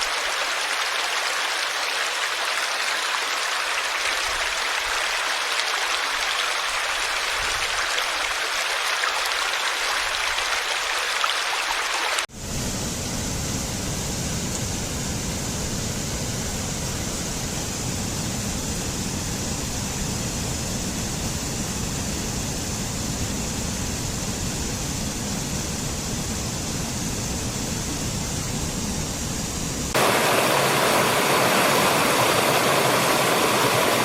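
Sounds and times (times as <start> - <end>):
rushing water: 0.0 - 12.3, 29.9 - 34.0.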